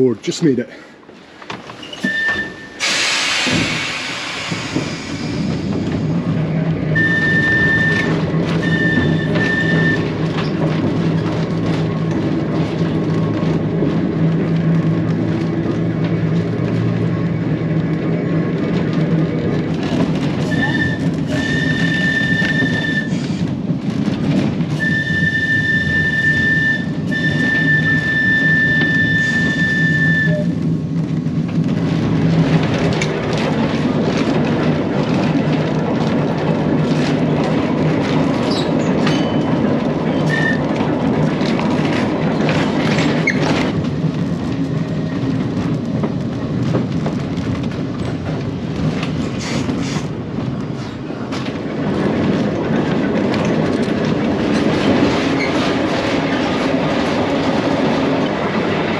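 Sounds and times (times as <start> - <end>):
tram wheels and motors rumbling: 0.0 - 58.9
high wheel squeal: 1.8 - 5.4, 7.0 - 10.1.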